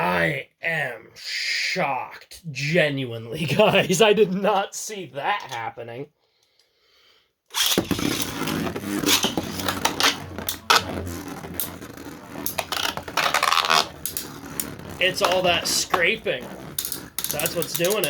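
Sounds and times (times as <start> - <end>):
spinning tops clattering together: 7.6 - 8.3, 16.7 - 18.0.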